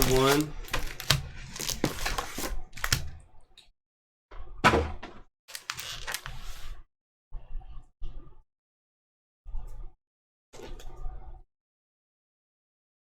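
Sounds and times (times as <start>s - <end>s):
cards rustling and flicking: 0.0s - 3.2s, 5.5s - 6.7s.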